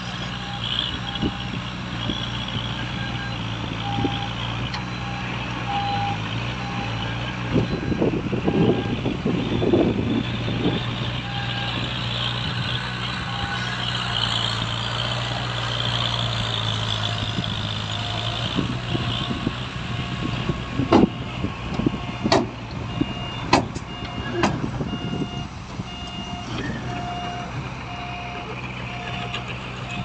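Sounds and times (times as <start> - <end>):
heavy diesel machinery running: 0.0 - 30.0
backup alarm beeping: 4.9 - 7.0, 21.0 - 29.4
sharp knocks: 20.9 - 21.1, 22.3 - 22.6, 23.5 - 23.8.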